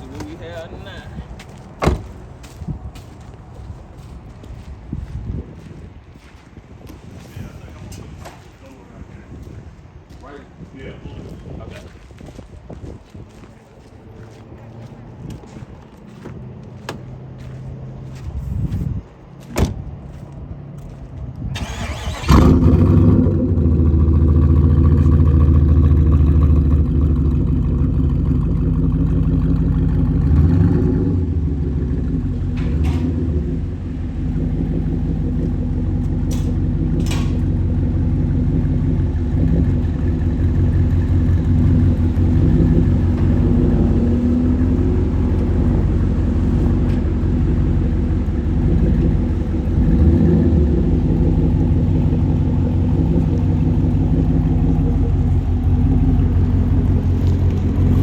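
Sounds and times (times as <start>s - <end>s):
car engine starting and idling: 20.9s - 58.0s.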